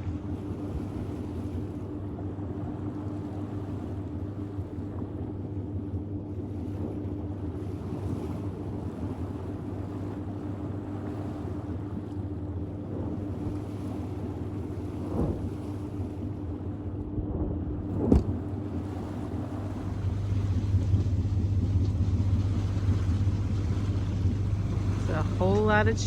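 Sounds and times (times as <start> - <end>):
steady low hum: 0.0 - 26.0
water noise: 0.0 - 26.0
wind on microphone: 0.0 - 26.0.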